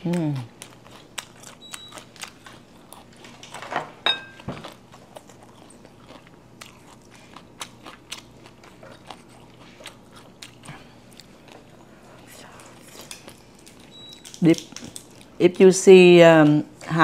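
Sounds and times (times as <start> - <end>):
person chewing food: 0.0 - 3.6, 4.3 - 15.4
ringing clink: 4.1 - 4.4.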